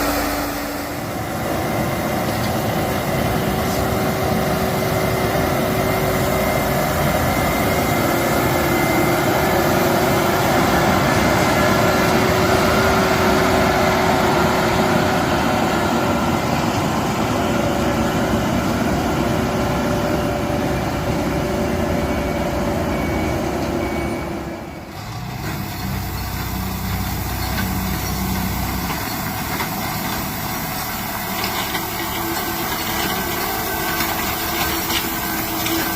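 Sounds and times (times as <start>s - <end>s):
machine whine: 0.0s - 15.4s
construction machinery engine: 0.0s - 35.9s.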